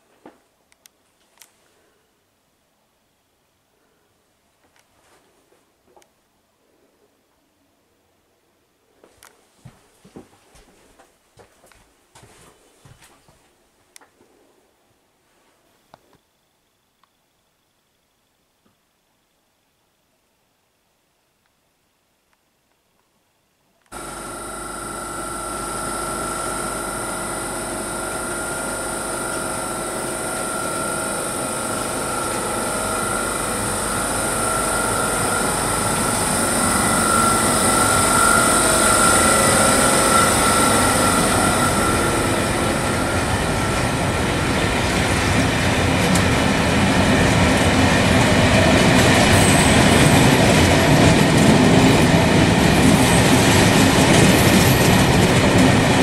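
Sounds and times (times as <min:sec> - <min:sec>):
machine running with high whine: 0:23.9 - 0:56.0.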